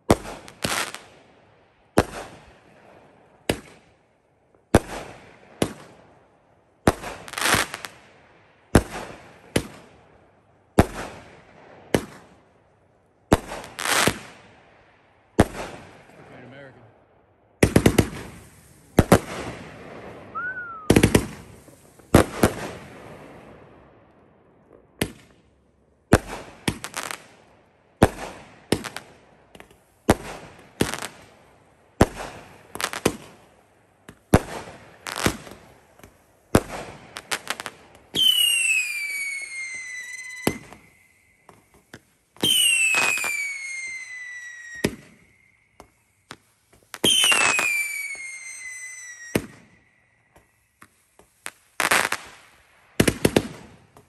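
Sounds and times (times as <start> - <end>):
firework crackles: 0.0 - 1.3, 6.8 - 10.1, 13.3 - 14.5, 15.3 - 16.9, 17.6 - 54.0
firework bangs: 3.4 - 3.9, 4.7 - 6.0, 6.8 - 8.0, 8.7 - 9.9, 10.7 - 12.4, 13.3 - 14.5, 15.4 - 16.8, 17.6 - 25.5, 26.1 - 27.4, 28.0 - 31.4, 32.0 - 54.0
falling firework whistles: 20.2 - 22.8, 37.2 - 52.4.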